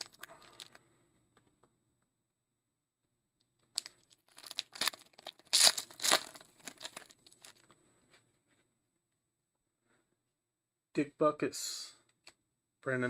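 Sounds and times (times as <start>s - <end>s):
foil wrapper tearing and crinkling: 3.8s - 7.6s.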